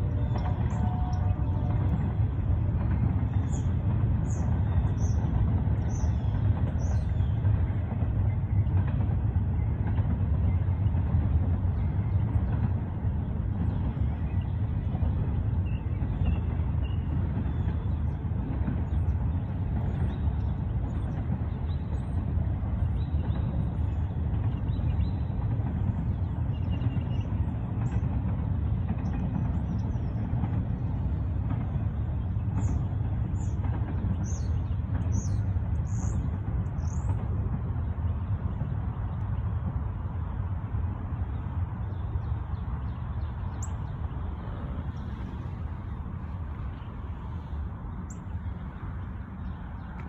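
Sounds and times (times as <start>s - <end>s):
freight train rumbling past: 0.0s - 50.0s
birds chirping: 41.2s - 50.0s.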